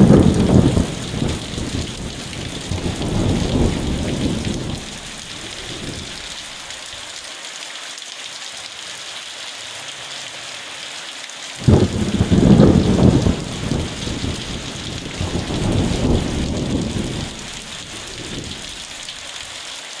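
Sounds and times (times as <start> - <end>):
thunder rumbling: 0.0 - 6.6, 11.6 - 19.2
rain falling: 0.0 - 20.0.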